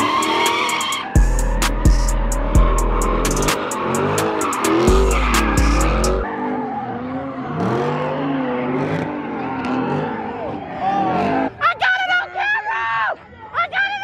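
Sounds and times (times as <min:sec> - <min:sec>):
hip-hop music with heavy bass: 0:00.0 - 0:06.4
tyres screeching: 0:00.0 - 0:10.3
car engine revving: 0:00.0 - 0:11.6.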